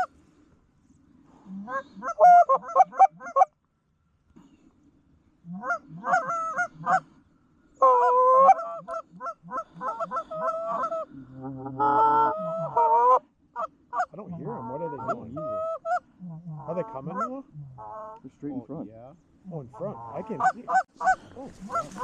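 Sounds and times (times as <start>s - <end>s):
goose honking and clucking: 1.4s - 3.5s, 5.4s - 7.1s, 7.8s - 18.3s, 19.5s - 22.0s.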